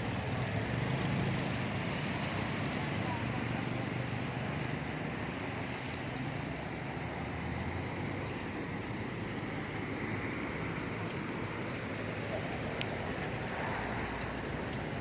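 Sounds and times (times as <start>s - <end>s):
rushing floodwater roar: 0.0s - 15.0s.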